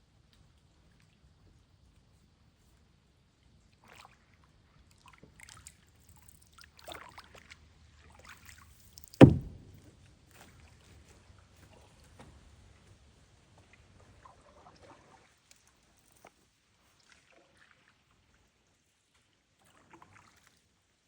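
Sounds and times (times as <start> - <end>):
paddle splashing water: 9.2 - 9.8
paddle thump against canoe: 9.2 - 9.8.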